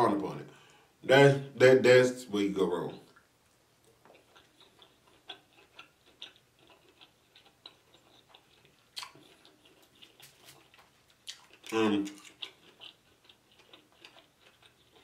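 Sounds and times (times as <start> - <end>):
person chewing with wet mouth clicks: 3.1 - 15.0.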